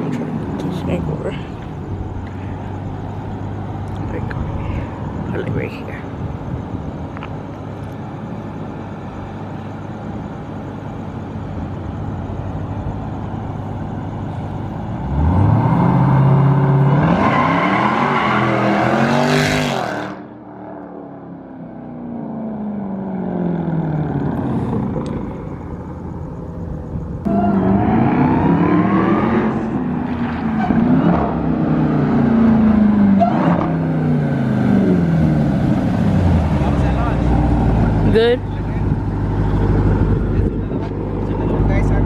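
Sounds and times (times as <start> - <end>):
car engine accelerating: 11.9 - 42.0.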